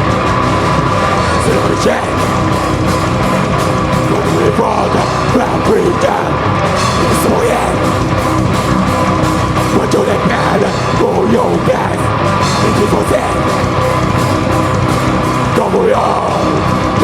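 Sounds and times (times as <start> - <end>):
distorted electric guitars: 0.0 - 17.0
drums: 0.0 - 17.0
person singing: 1.2 - 2.6, 4.0 - 8.0, 9.7 - 14.0, 15.4 - 17.0.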